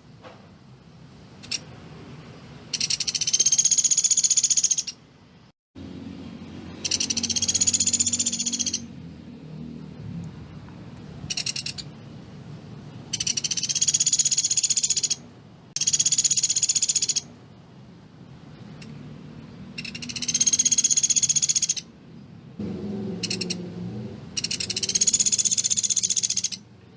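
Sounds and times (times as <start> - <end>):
woodpecker rattling trills: 2.7 - 5.0, 6.8 - 8.9, 11.3 - 11.9, 13.1 - 15.2, 15.8 - 17.3, 19.8 - 21.9, 23.2 - 23.6, 24.4 - 26.7.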